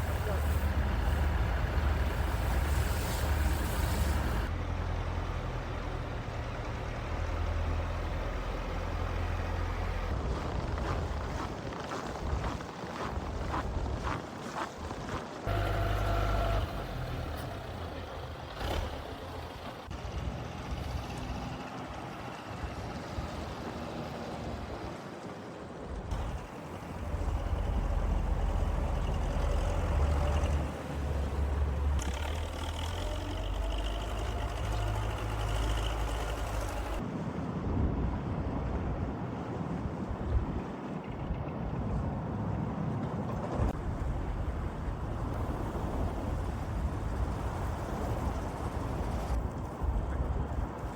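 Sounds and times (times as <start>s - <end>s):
heavy truck engines rumbling: 0.0s - 11.4s, 15.4s - 37.0s, 42.7s - 50.9s
street traffic: 0.0s - 50.9s.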